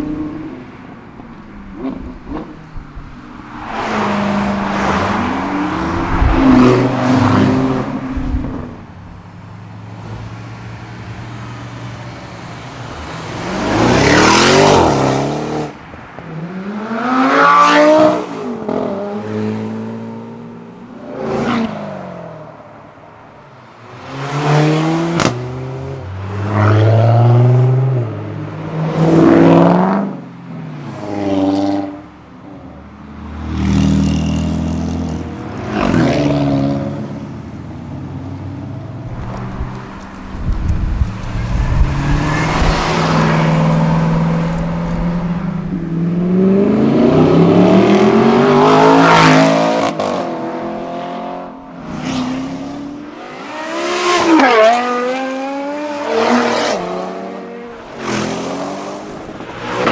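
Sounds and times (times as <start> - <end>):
cars accelerating past: 0.0 - 9.1, 9.7 - 22.2, 33.2 - 37.3, 38.0 - 59.9.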